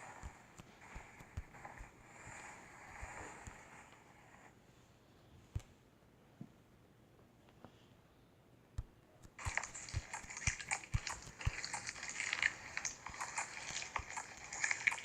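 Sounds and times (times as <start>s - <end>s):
slime crackling and popping: 9.2s - 15.0s.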